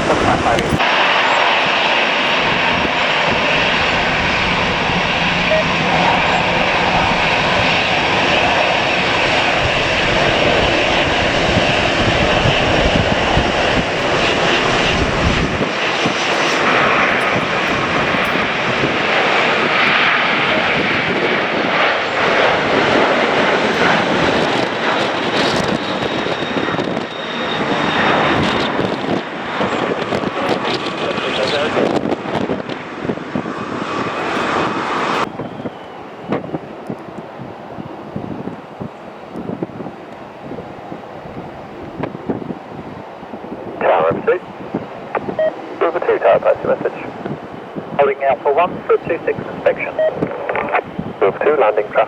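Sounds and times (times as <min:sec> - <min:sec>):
deep low rumble: 0:00.0 - 0:24.7
jet engines roaring: 0:00.0 - 0:52.0.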